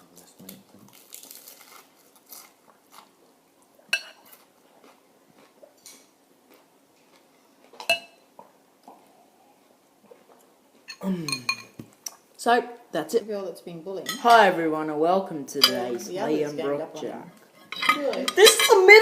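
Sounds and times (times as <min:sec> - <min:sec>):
person chewing crunchy food: 0:00.8 - 0:07.8
tableware clinking: 0:04.0 - 0:04.3, 0:07.8 - 0:08.2, 0:10.9 - 0:11.9, 0:15.6 - 0:16.1, 0:17.6 - 0:19.0.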